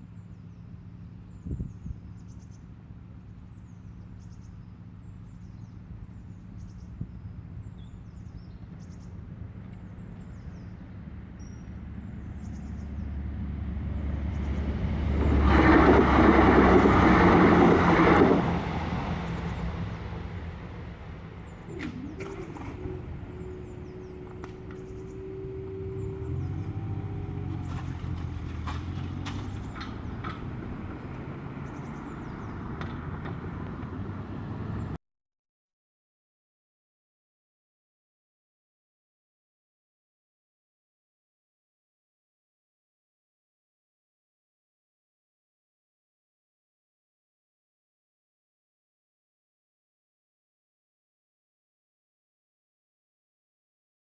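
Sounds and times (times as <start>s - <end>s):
faint birdsong: 0.0s - 15.4s, 18.9s - 35.0s
diesel train passing: 9.2s - 35.0s.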